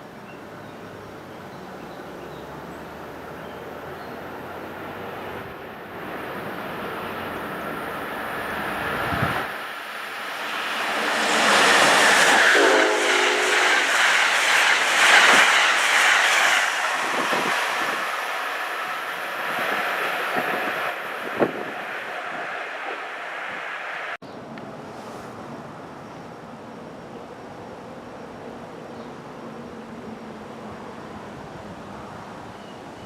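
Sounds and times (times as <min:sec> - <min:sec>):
passenger train passing: 0:00.0 - 0:33.0
train horn blast: 0:11.0 - 0:14.0.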